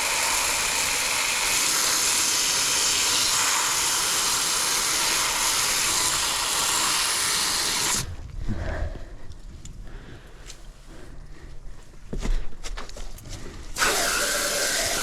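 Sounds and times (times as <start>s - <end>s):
hose spraying water: 0.0s - 8.1s, 13.8s - 15.0s.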